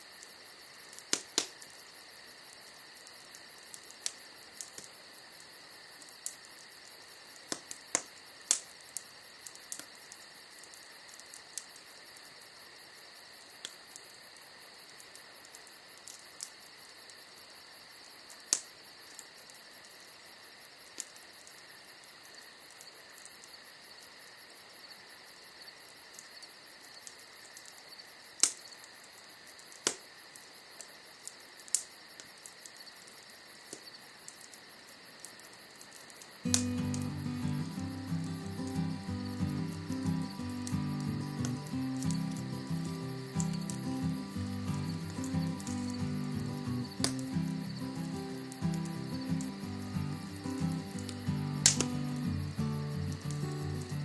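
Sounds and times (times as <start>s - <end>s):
wood fire crackling: 0.0s - 12.4s, 30.7s - 54.0s
insect chirring: 0.0s - 54.0s
sharp pops from fire: 0.2s - 1.9s, 3.5s - 12.0s, 13.5s - 14.5s, 18.3s - 19.6s, 20.8s - 21.2s, 28.4s - 28.9s, 29.6s - 30.2s, 30.8s - 34.6s, 35.2s - 54.0s.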